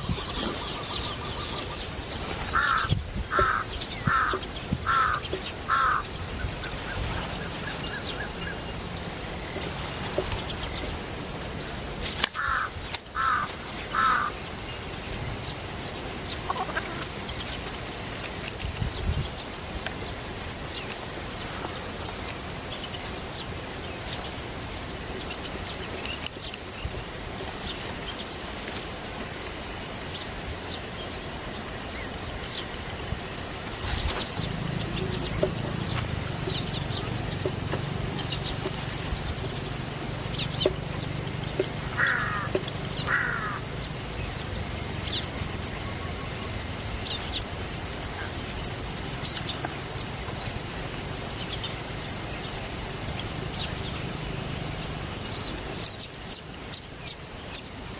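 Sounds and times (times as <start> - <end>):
fluttering bird calls: 0.0 - 14.5, 32.4 - 57.7.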